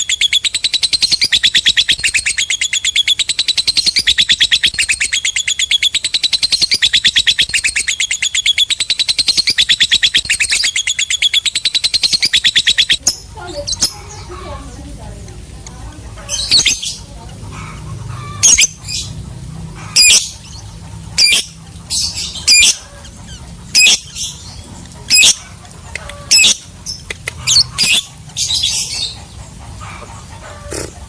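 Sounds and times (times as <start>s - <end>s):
bird chirping shrilly: 0.0s - 14.4s, 16.3s - 30.0s
bird chattering: 0.0s - 31.0s.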